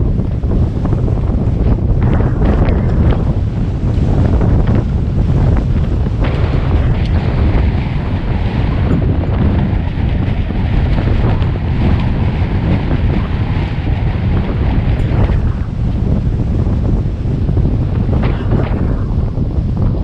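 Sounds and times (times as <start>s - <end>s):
loud steady rumble: 0.0s - 20.0s
waves slapping against boat: 0.0s - 20.0s
wind buffeting microphone: 0.0s - 20.0s.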